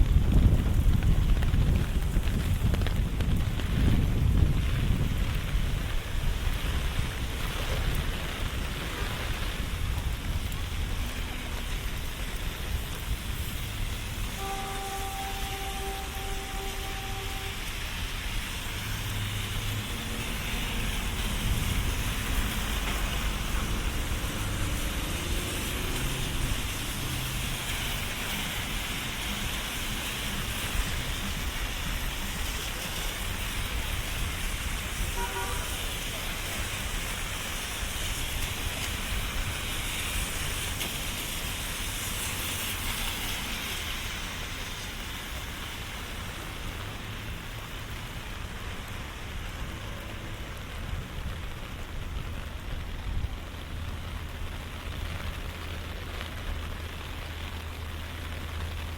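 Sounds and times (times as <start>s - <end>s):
rain and tyres on wet pavement: 0.0s - 58.9s
traffic engine rumble: 0.0s - 58.9s
car horn beep: 14.4s - 17.9s, 35.2s - 35.8s.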